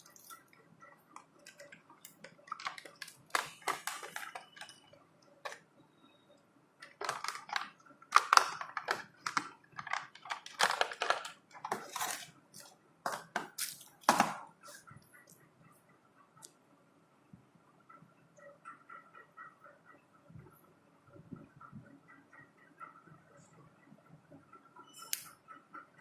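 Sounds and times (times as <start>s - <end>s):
packaging rustling and crackling: 1.4s - 4.8s, 6.8s - 14.0s.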